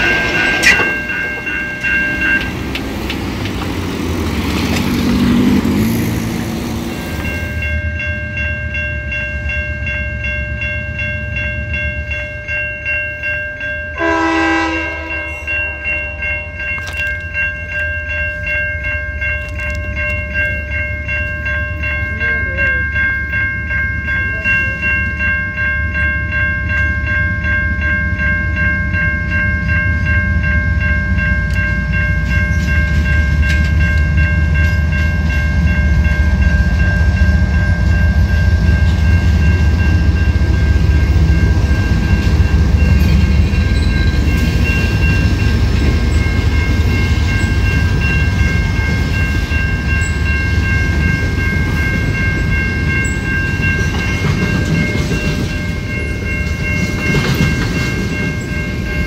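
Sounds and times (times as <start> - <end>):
train wheels clickety-clack: 0.0 - 7.6, 31.4 - 59.0
crossing warning bell: 0.0 - 59.0
locomotive horn blast: 14.0 - 15.5.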